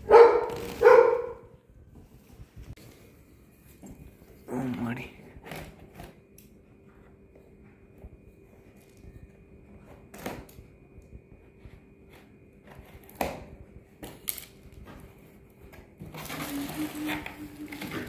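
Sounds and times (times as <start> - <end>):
packing material crackling: 0.4 - 0.9.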